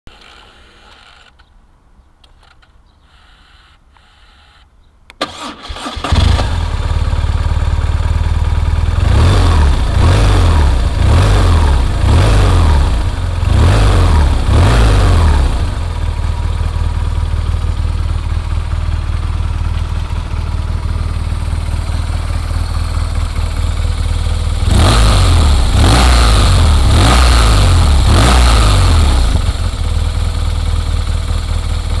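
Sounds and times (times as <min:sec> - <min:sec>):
motorcycle starter cranking: 0:05.2 - 0:06.8
motorcycle engine idling: 0:06.3 - 0:13.6, 0:15.4 - 0:32.0
motorcycle throttle blips: 0:07.8 - 0:32.0.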